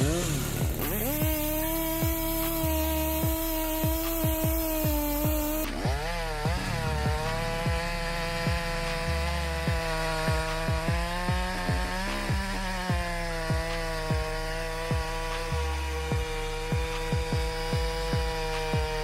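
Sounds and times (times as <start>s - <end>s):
chainsaw cutting wood: 0.0s - 19.0s
music with thudding beat: 0.0s - 19.0s.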